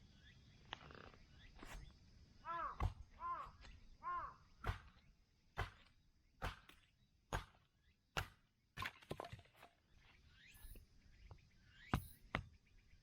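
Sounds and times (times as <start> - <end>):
axe chopping firewood: 2.8 - 3.1, 4.6 - 5.0, 5.6 - 9.4.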